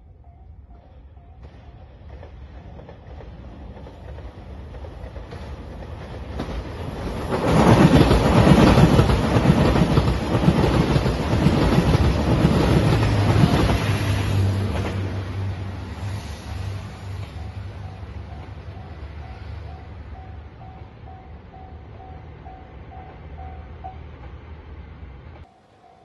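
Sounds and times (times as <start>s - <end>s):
diesel train passing: 0.0s - 26.0s
wheels clattering on rail joints: 1.4s - 15.6s.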